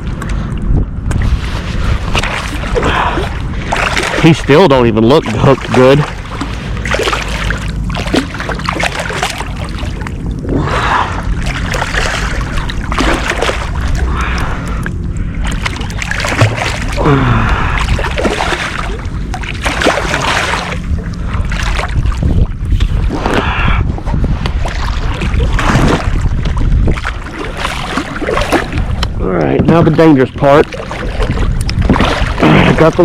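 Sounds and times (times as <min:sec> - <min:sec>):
water splashing around kayak: 0:00.0 - 0:33.0
wind rumble on microphone: 0:00.0 - 0:33.0.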